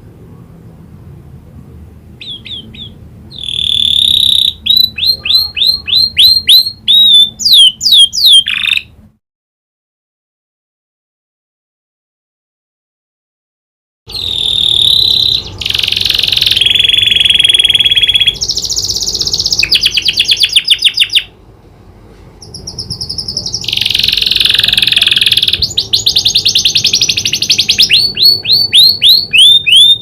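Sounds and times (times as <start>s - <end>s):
canary singing trills: 2.2s - 9.0s, 14.1s - 21.4s, 22.4s - 30.0s.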